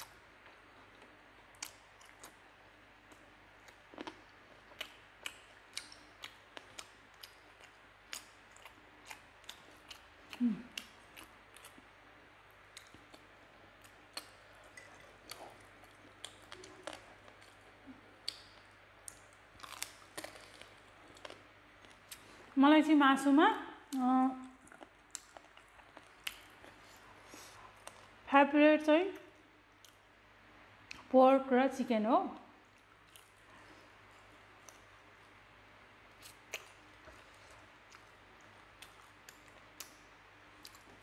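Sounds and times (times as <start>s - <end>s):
person chewing chicken wings: 3.0s - 11.9s, 12.6s - 22.5s, 24.6s - 28.1s, 36.1s - 40.0s.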